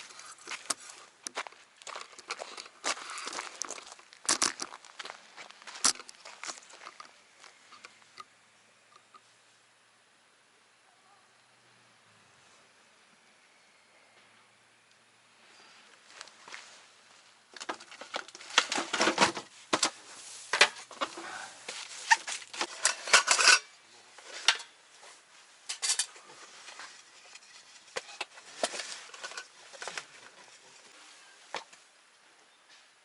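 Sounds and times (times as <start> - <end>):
hard objects clattering and scraping: 17.6 - 24.8, 25.7 - 31.0.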